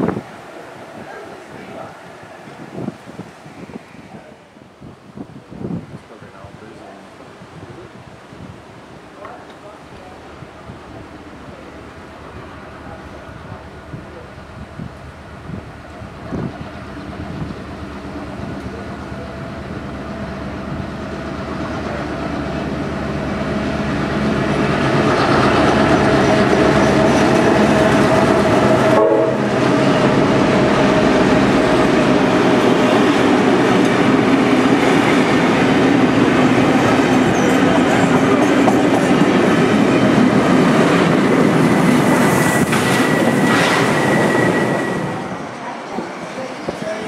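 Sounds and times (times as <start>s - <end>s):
train wheels clattering on rails: 31.0s - 45.3s
thin high squeal: 42.4s - 45.4s.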